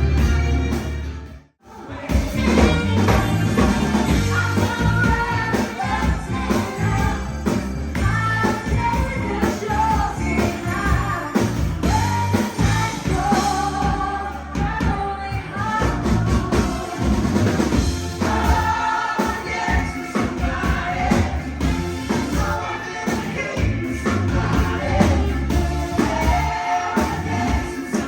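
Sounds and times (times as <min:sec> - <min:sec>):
rock band playing: 0:00.0 - 0:01.4, 0:02.0 - 0:15.0, 0:15.6 - 0:28.0
person singing: 0:01.7 - 0:21.4.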